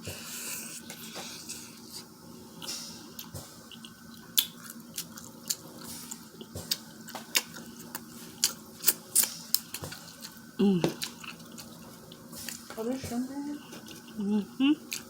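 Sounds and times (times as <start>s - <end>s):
chewing and lip smacking: 3.2s - 12.7s, 13.6s - 15.0s.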